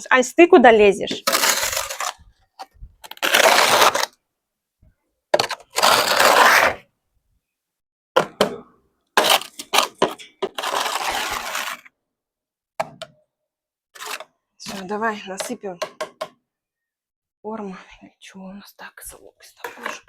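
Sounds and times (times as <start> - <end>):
dustpan scraping snow: 1.2 - 2.2, 3.1 - 4.1, 5.4 - 6.8, 10.5 - 11.9.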